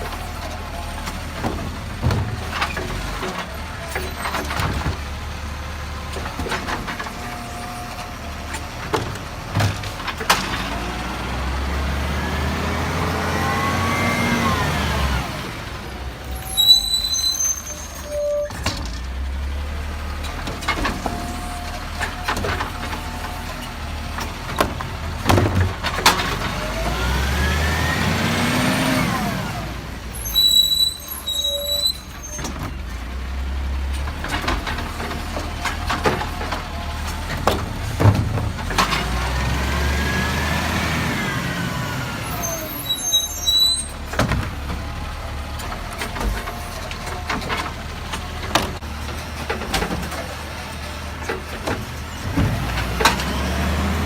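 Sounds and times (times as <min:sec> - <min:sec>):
garbage truck diesel engine revving: 0:00.0 - 0:17.9, 0:18.6 - 0:54.0
high-pitched brake squeals: 0:16.3 - 0:18.7, 0:30.1 - 0:32.5, 0:42.3 - 0:44.0.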